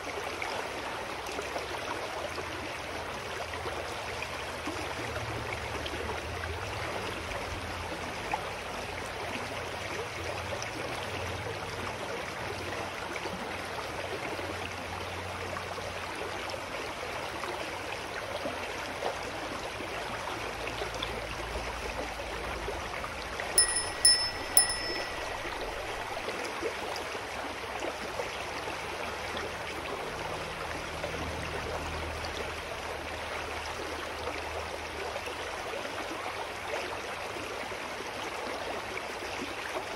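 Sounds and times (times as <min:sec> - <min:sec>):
stream trickling: 0:00.0 - 0:39.9
small bell ringing: 0:23.6 - 0:26.2.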